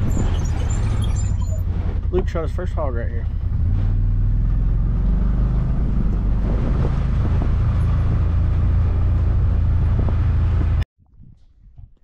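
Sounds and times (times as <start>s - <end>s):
wind noise on microphone: 0.0s - 2.1s, 5.0s - 12.0s
vehicle engine rumble: 0.0s - 12.0s.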